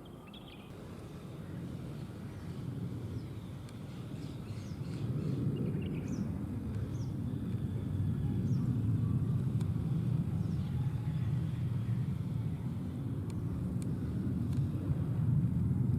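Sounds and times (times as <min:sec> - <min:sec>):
traffic rumble: 0:00.0 - 0:15.9.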